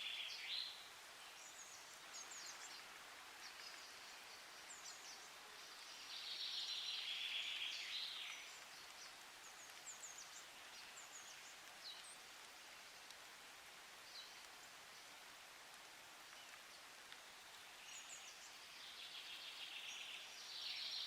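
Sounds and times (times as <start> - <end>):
bird song phrase: 0.0 - 2.8, 3.4 - 12.1, 17.8 - 21.0.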